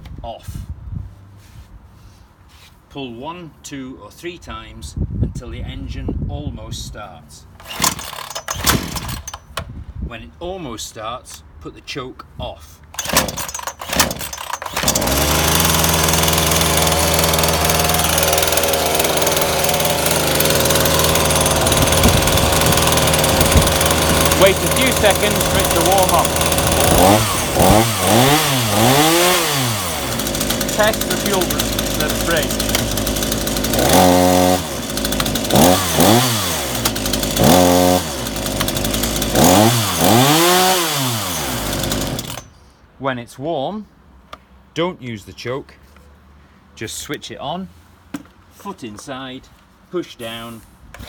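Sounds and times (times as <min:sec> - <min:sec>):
chainsaw engine idling: 0:07.6 - 0:09.4, 0:13.0 - 0:42.5
starter cord pull: 0:07.6 - 0:09.7, 0:12.9 - 0:42.5.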